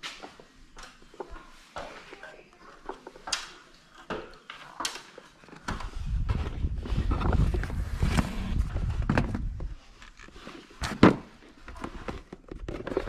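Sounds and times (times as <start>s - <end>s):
low rumbling rustle: 5.8s - 10.7s.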